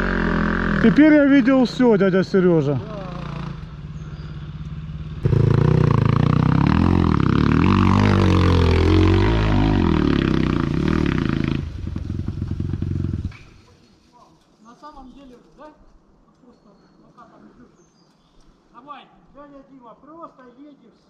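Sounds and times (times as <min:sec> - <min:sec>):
motorcycle engine revving: 0:00.0 - 0:13.6.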